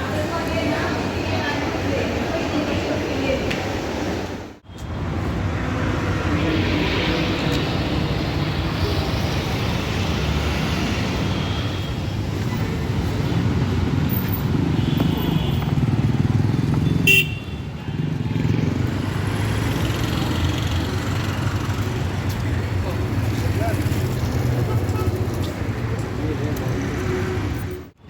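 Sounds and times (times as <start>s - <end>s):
road traffic engines: 0.0s - 28.0s
car horn toots: 16.8s - 17.6s.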